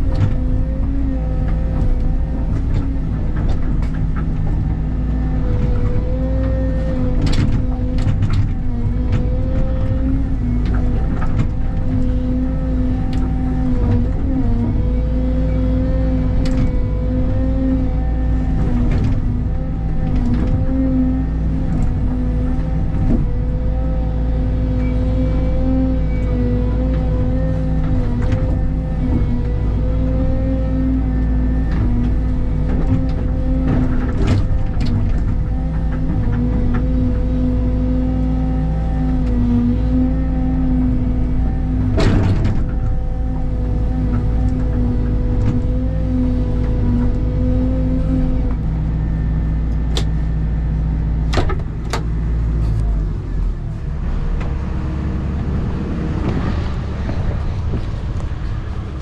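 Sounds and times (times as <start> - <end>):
machine knocks and clanks: 0.0 - 15.1, 31.2 - 37.8, 40.8 - 49.0, 51.2 - 53.0, 54.1 - 59.0
excavator diesel engine running: 0.0 - 59.0.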